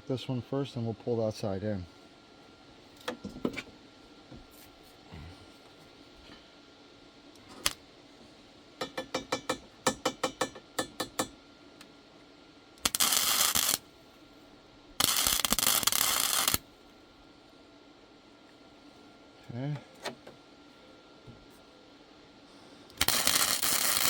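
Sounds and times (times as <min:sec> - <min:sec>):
welding arc crackling: 0:12.8 - 0:13.8, 0:15.0 - 0:16.6, 0:22.9 - 0:24.0.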